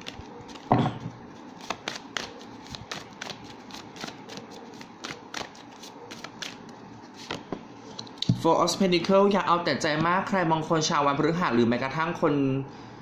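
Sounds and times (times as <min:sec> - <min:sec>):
cards being shuffled: 0:00.0 - 0:00.8, 0:01.4 - 0:07.5.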